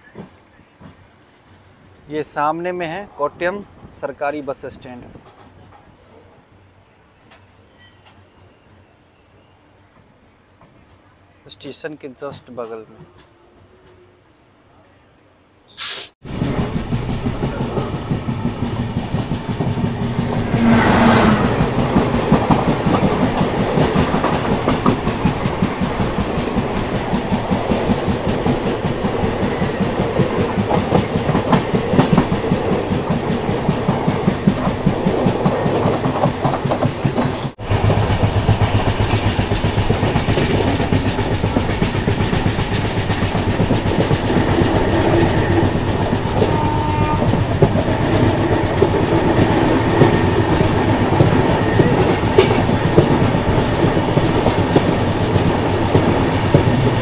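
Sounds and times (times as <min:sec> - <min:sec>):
passing train fast clatter: 0:15.8 - 0:57.0
train wheels clattering: 0:16.2 - 0:57.0.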